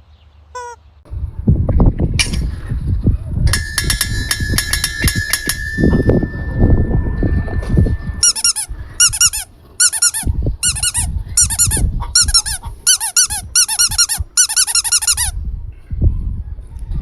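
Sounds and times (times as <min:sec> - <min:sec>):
high-pitched squeaking chirps: 0:00.6 - 0:00.8, 0:03.8 - 0:15.4.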